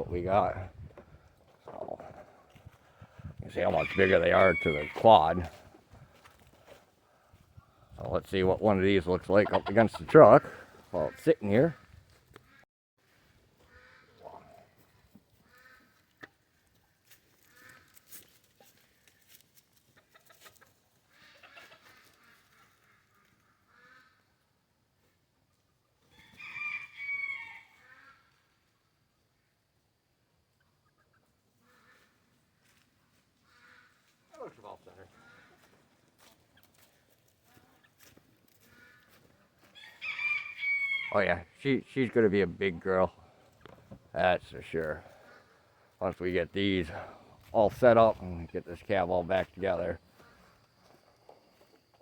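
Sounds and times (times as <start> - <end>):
faint farmyard fowl calls: 0.0 - 52.0
rooster crowing: 3.6 - 5.2, 26.1 - 27.8, 39.8 - 41.3.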